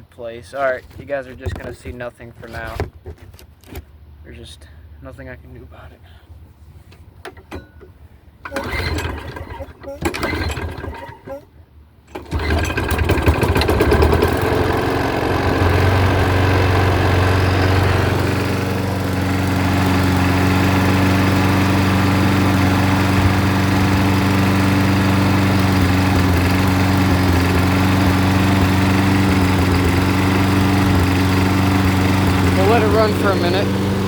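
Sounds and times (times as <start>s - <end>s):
lawn mower engine running: 8.4s - 11.4s, 12.1s - 34.0s.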